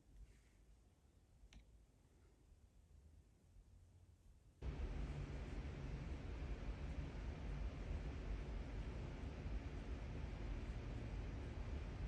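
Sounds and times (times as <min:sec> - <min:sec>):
faint click: 0:01.5 - 0:01.7.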